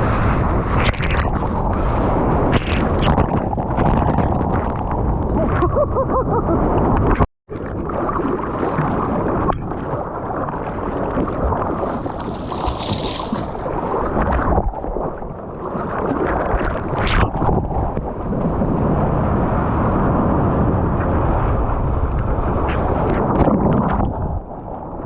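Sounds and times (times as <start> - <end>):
wind buffeting microphone: 0.0 - 7.2, 8.6 - 25.0
seawater sloshing and churning: 6.7 - 25.0.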